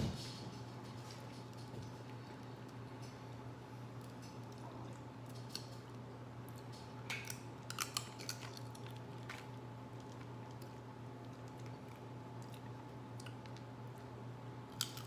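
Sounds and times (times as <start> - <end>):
steady low hum: 0.0 - 15.0
seafood shells cracking: 5.3 - 12.4, 14.6 - 15.0.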